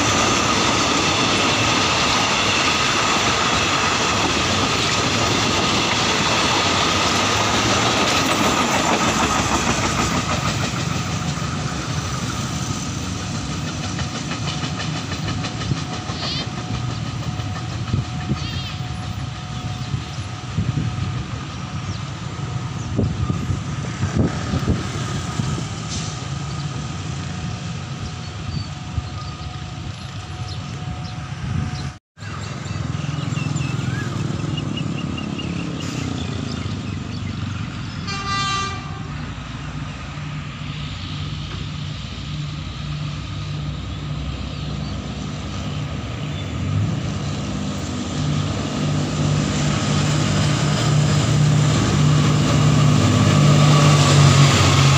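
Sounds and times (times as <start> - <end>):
diesel locomotive engine rumble: 0.0 - 54.9
outdoor noise: 0.0 - 54.9
train horn: 38.0 - 39.3.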